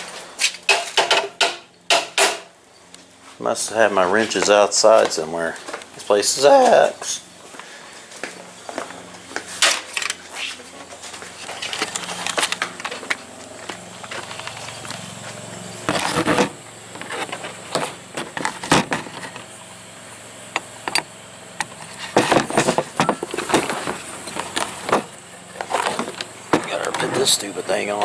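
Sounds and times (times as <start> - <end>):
knocks and clatters of objects: 0.6 - 2.5, 15.8 - 19.5, 20.6 - 27.3
rustling of handled things: 3.0 - 19.5, 21.6 - 28.0.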